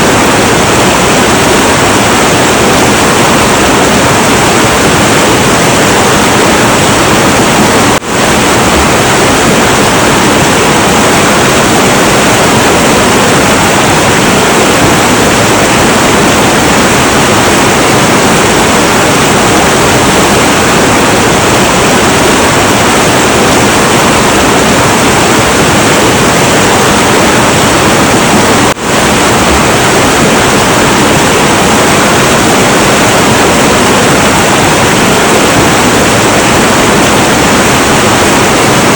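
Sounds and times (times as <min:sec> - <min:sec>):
turbulent river water roaring: 0:00.0 - 0:38.9.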